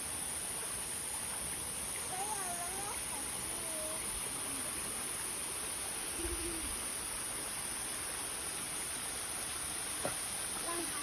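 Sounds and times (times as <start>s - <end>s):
continuous high hiss: 0.0s - 11.0s.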